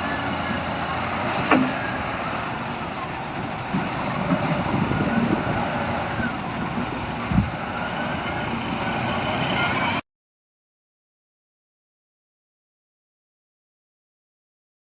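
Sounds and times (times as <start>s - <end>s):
truck engine running: 0.0s - 10.0s
low thump: 1.4s - 1.8s.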